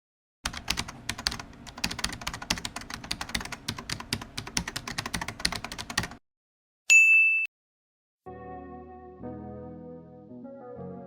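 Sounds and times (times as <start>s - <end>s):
fast typing on keyboard: 0.5s - 6.2s.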